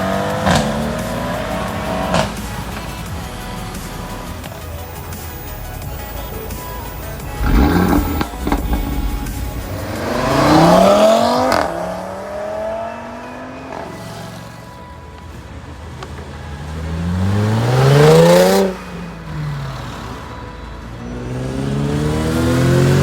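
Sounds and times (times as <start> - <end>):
car engine accelerating hard: 0.0 - 2.7, 5.6 - 14.6, 16.5 - 20.2, 21.2 - 23.0.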